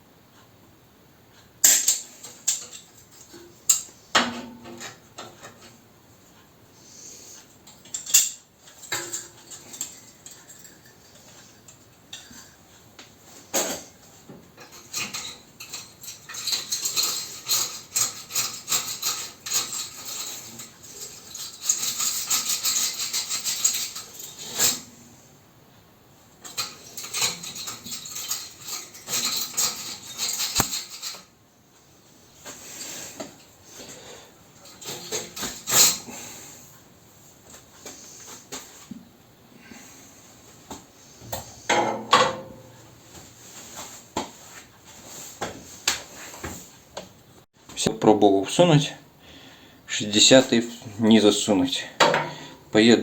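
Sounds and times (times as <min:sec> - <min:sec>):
wire brush scraping metal tube: 0:14.6 - 0:25.0, 0:26.4 - 0:31.3, 0:34.6 - 0:36.3.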